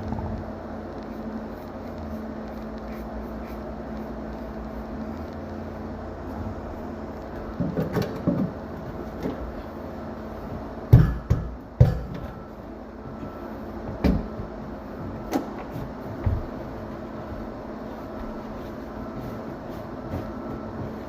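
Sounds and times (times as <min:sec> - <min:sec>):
steady low hum: 0:00.0 - 0:21.0
hard objects knocking and clunking: 0:07.4 - 0:08.6.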